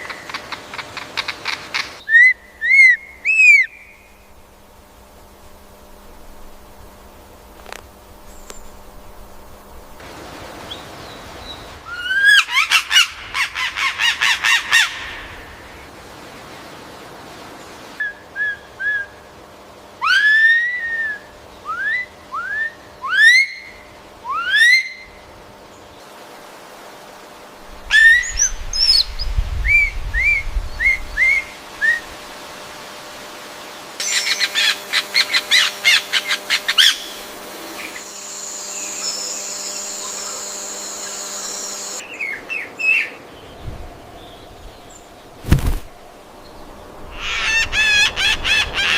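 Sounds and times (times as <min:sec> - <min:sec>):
birds calling with whistles: 0:00.0 - 0:04.2, 0:27.9 - 0:32.1, 0:34.0 - 0:45.1.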